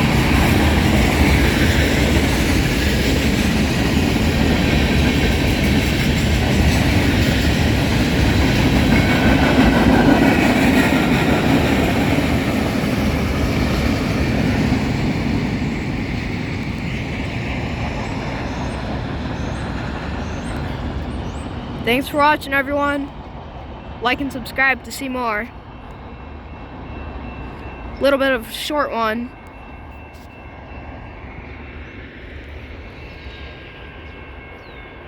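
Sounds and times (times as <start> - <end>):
freight train wheels clacking: 0.0 - 23.3.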